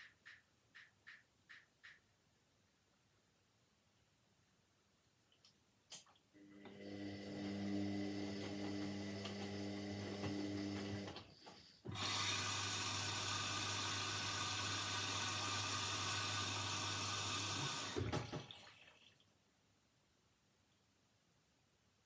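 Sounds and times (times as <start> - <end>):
washing machine pump hum: 6.4 - 19.1
water hissing into machine: 11.9 - 18.3.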